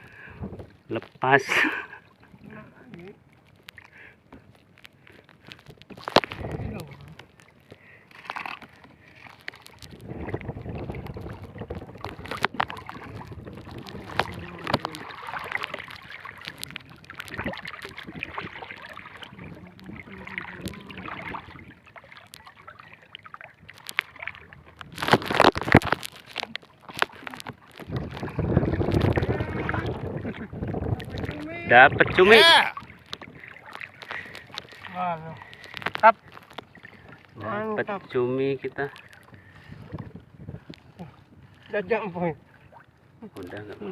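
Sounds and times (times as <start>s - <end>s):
wind buffeting microphone: 0.0s - 0.9s, 6.3s - 7.2s, 9.8s - 21.9s, 27.7s - 33.6s, 38.7s - 42.1s
water sloshing: 0.0s - 43.9s.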